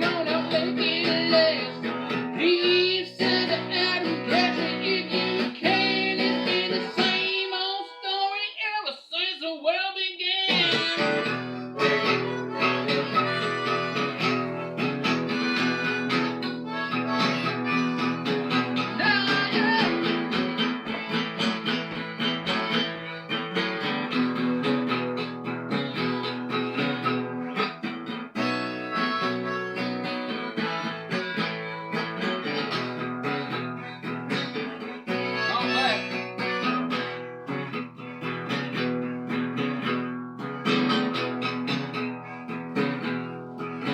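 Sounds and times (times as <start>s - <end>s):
harmonica playing: 0.0s - 8.8s, 10.5s - 43.9s
plucked strings: 10.5s - 43.9s.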